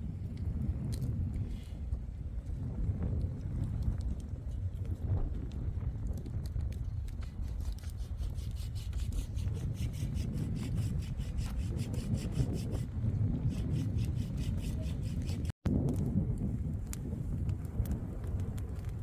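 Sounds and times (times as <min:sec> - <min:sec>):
hand saw cutting wood: 0:07.4 - 0:12.9, 0:13.5 - 0:15.6.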